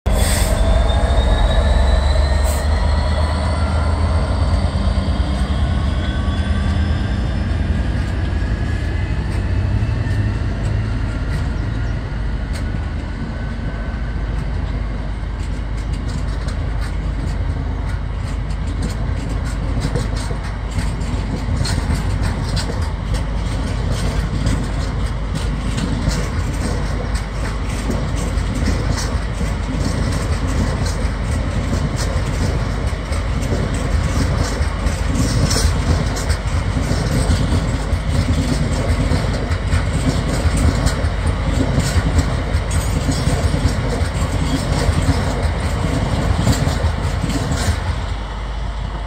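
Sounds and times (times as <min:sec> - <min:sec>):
diesel locomotive engine: 0:00.0 - 0:49.0
high whining tones: 0:00.1 - 0:14.0
wagons rumbling over rail joints: 0:00.1 - 0:49.0.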